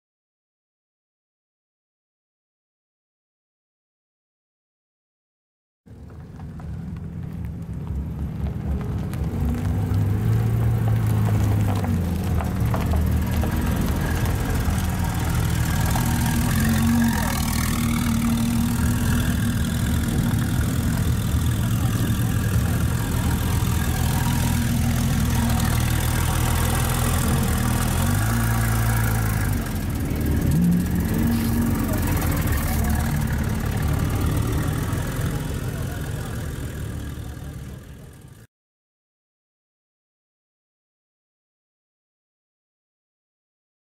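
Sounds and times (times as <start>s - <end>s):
car engine idling: 5.9s - 38.4s.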